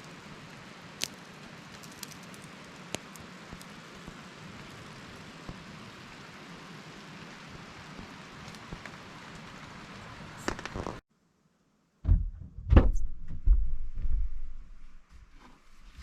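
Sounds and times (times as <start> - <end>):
rain falling: 0.0 - 11.0
low thumps and knocks: 12.0 - 15.4.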